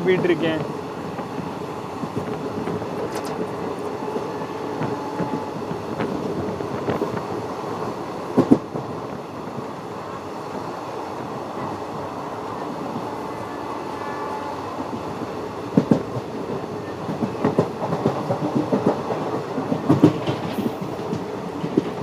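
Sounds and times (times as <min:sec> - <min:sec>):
train rumbling on track: 0:00.0 - 0:22.0
train wheels clacking over rail joints: 0:00.6 - 0:07.3, 0:14.9 - 0:22.0.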